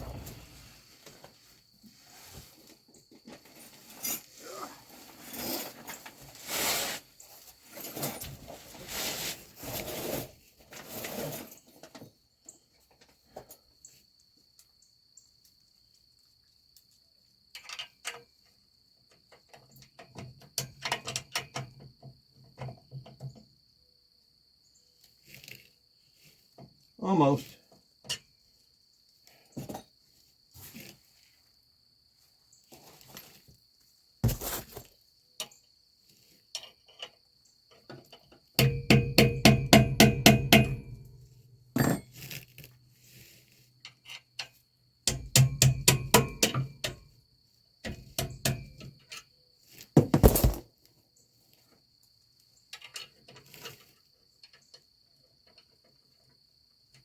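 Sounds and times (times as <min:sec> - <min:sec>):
low hum: 0:00.0 - 0:00.8
metal knocks and clanks: 0:38.6 - 0:41.2, 0:45.1 - 0:47.0.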